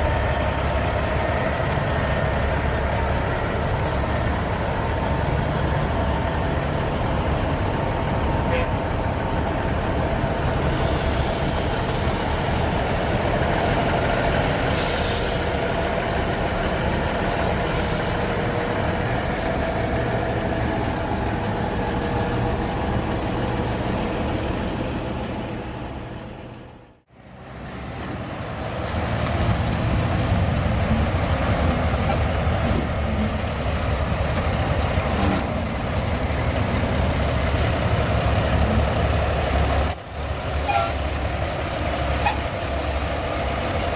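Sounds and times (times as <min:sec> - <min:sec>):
diesel truck engines running: 0:00.0 - 0:43.9
air brake hiss: 0:03.8 - 0:04.5, 0:10.7 - 0:12.6, 0:14.7 - 0:15.9, 0:17.7 - 0:18.6.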